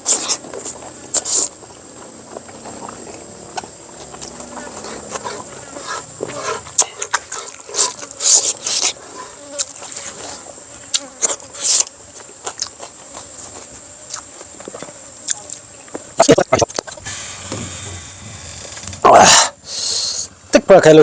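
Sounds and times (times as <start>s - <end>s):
person chewing and lip-smacking: 11.0s - 13.3s.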